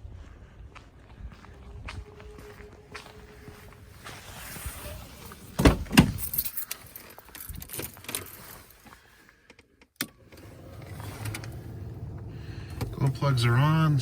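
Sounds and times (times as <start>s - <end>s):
car keys jangling: 5.6s - 8.9s.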